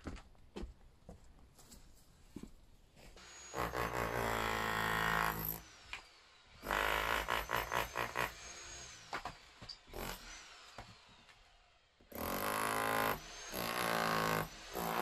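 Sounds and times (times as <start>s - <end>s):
power tool motor running: 3.2s - 15.0s.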